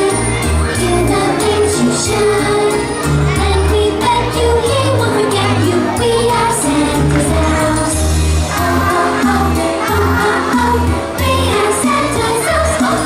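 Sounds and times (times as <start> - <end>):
small bells shaking in rhythm: 0.0 - 13.0
group singing a christmas song: 3.4 - 13.0.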